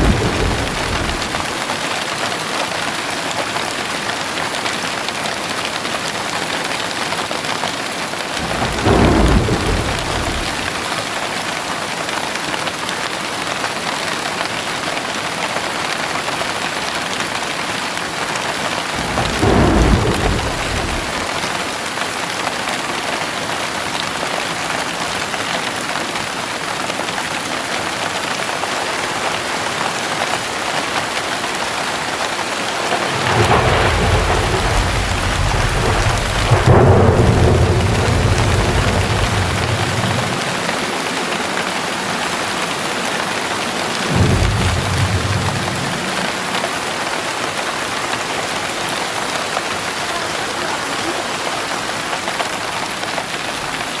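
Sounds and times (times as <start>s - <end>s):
thunder rumbling: 0.0s - 2.0s, 8.3s - 11.3s, 18.6s - 21.9s, 32.0s - 50.0s
heavy rain falling: 0.0s - 54.0s.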